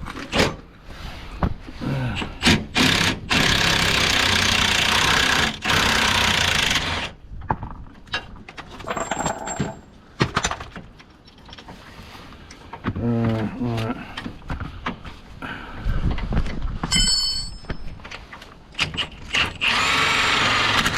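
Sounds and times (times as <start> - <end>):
power tool rattling: 2.4 - 7.2, 18.8 - 20.9.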